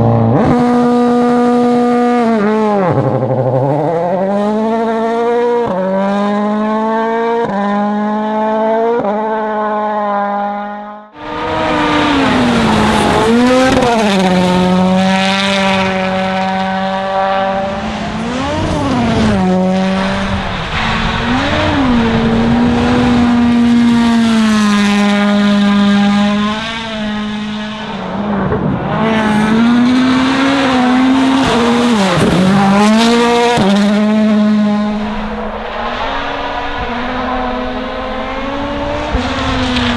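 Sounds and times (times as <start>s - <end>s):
rally car engine at full throttle: 0.0s - 39.9s.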